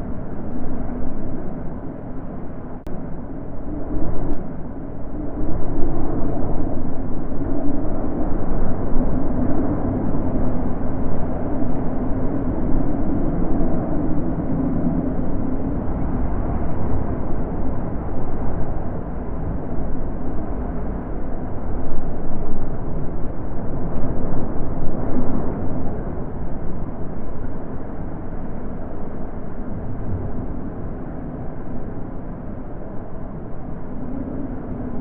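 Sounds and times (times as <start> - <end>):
wind blowing: 0.0 - 35.0.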